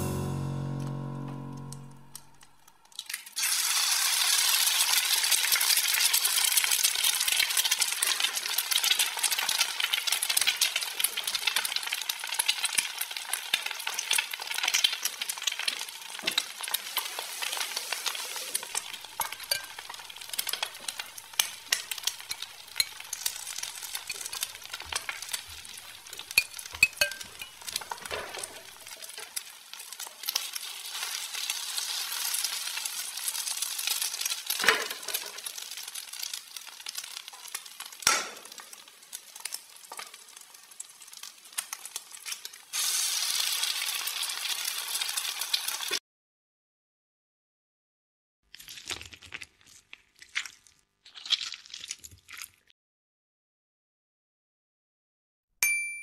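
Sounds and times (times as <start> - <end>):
food frying sizzle: 0.0 - 46.0.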